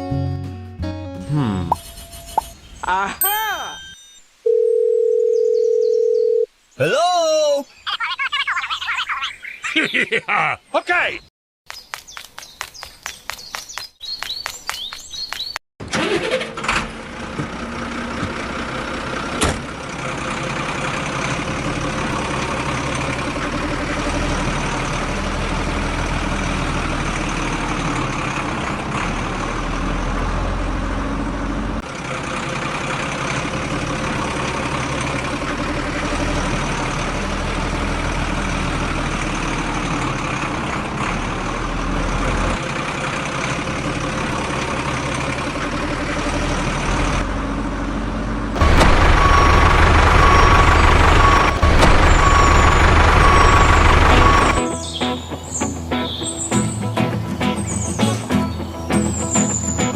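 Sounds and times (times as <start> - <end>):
birds chirping: 1.3 - 4.2, 5.3 - 15.6, 48.6 - 59.9
engine running with low rumble: 15.9 - 54.7.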